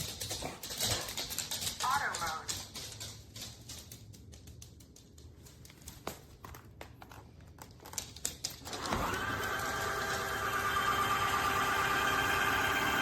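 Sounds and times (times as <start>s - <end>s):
faint clicks and rustles: 0.0s - 8.9s
vacuum motor whine: 8.7s - 13.0s.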